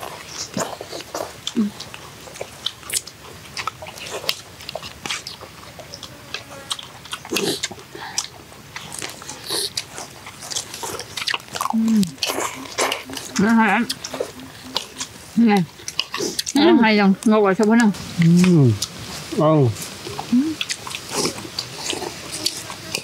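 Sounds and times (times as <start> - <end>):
man chewing: 0.0 - 23.0
man humming: 11.7 - 15.5, 18.2 - 18.8, 20.3 - 20.6.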